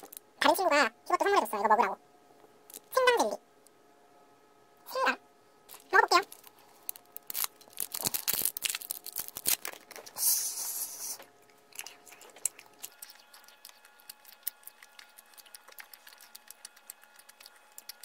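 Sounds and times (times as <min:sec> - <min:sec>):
wet chewing mouth smacks: 0:11.2 - 0:18.0.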